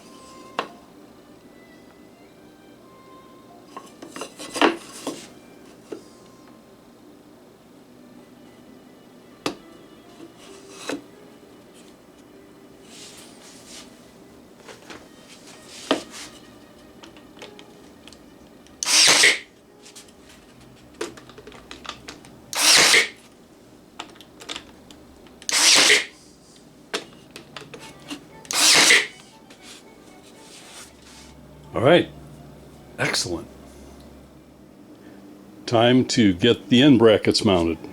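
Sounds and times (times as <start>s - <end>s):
nailer firing into wood: 18.8s - 19.4s, 22.6s - 23.2s, 25.5s - 26.1s, 28.5s - 29.1s.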